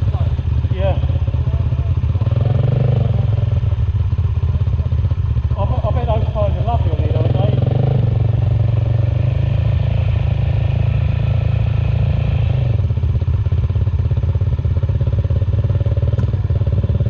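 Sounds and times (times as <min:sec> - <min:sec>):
motorcycle engine pulsing: 0:00.0 - 0:17.0.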